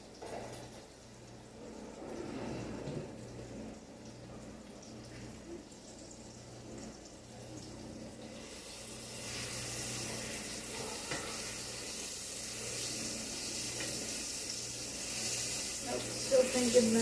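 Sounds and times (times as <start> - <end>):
chicken sizzling in a pan: 4.1 - 17.0.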